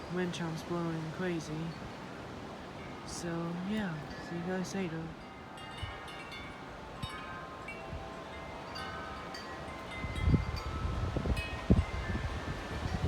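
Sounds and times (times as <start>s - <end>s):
wind chimes ringing: 2.6s - 13.0s
wind buffeting microphone: 5.1s - 13.0s.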